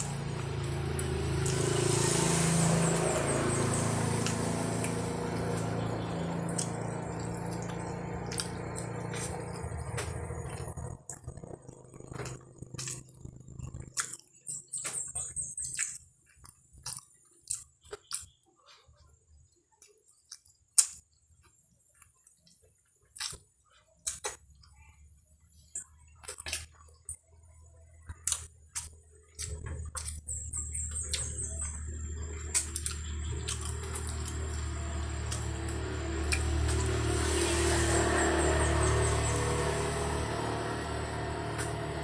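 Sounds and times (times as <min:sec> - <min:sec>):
crisp crunching and chewing: 0:00.0 - 0:18.9, 0:21.9 - 0:24.4, 0:25.7 - 0:27.3, 0:28.0 - 0:42.0.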